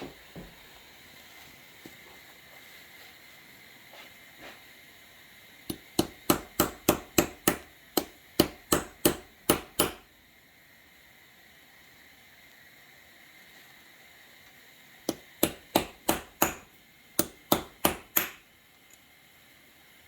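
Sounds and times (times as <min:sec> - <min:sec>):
hammer tapping on metal: 0:05.7 - 0:10.0, 0:15.1 - 0:18.4.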